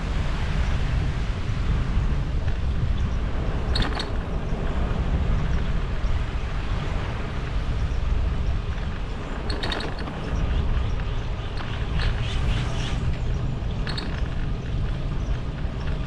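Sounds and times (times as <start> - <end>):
road noise: 0.0 - 16.0
wind buffeting microphone: 0.0 - 16.0
short high ticks or rattles: 3.6 - 4.6, 8.8 - 16.0.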